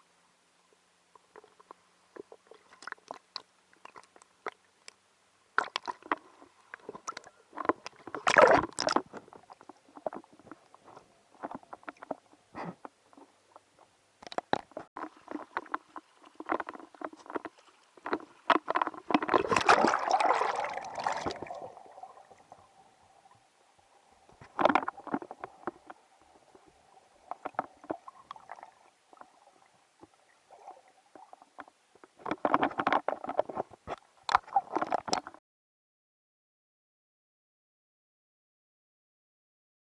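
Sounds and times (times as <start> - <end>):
water sloshing: 5.6 - 12.4, 14.3 - 23.4.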